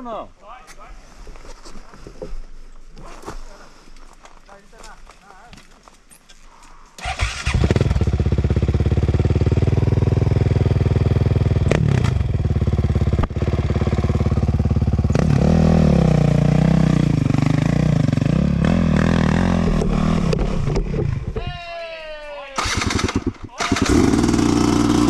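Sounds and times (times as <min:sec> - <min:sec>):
motorcycle engine revving: 0:07.0 - 0:21.4, 0:22.6 - 0:25.0.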